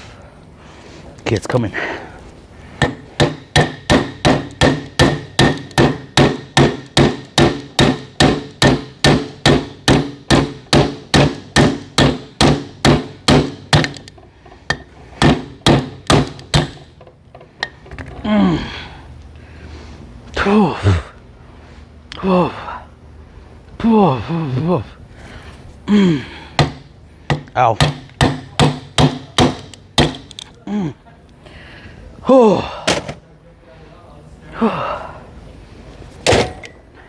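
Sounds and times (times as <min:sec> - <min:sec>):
hammer striking metal: 0:02.8 - 0:14.1, 0:14.7 - 0:16.9, 0:26.6 - 0:30.3.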